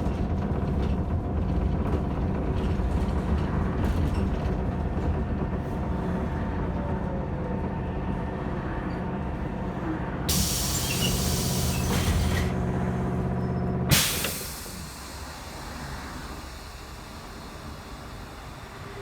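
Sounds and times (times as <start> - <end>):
trolleybus electric drive whining: 0.0 - 19.0
compressed air hissing: 10.3 - 12.5, 13.9 - 19.0.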